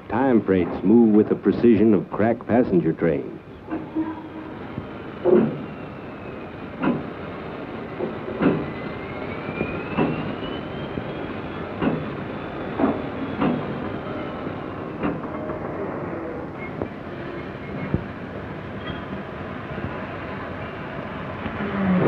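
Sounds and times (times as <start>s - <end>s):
train wheels knocking over rail joints: 5.2s - 5.8s, 6.8s - 7.2s, 8.0s - 8.8s, 9.9s - 10.4s, 11.8s - 14.1s, 14.9s - 15.8s.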